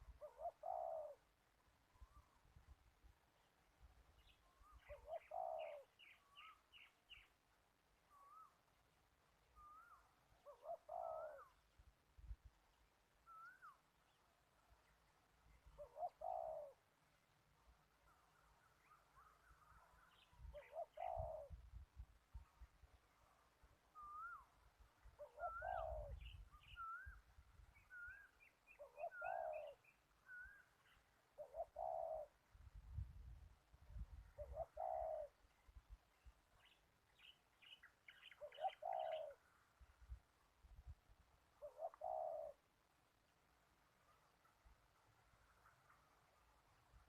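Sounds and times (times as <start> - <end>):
dove cooing: 0.1 - 1.3, 4.9 - 6.5, 9.6 - 11.6, 15.8 - 16.8, 20.5 - 21.6, 25.2 - 27.1, 28.7 - 29.8, 31.4 - 32.4, 34.4 - 35.4, 38.4 - 39.4, 41.6 - 42.6
small birds chirping: 34.4 - 39.6.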